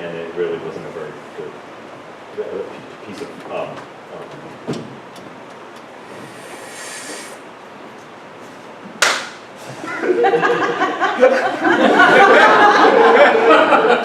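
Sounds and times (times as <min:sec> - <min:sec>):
sharp slap: 0:09.0 - 0:09.4
audience laughing: 0:09.6 - 0:14.0.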